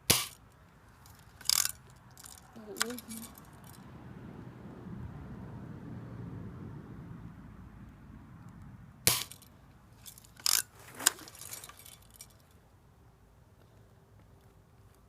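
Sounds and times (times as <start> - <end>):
bb gun firing snap: 0.1 - 0.4, 9.1 - 9.5
gun handling clicks: 0.2 - 3.8, 10.0 - 12.4.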